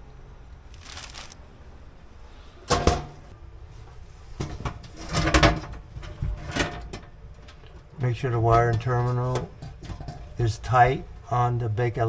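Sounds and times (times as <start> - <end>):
oven metal parts clanking: 4.4 - 10.7.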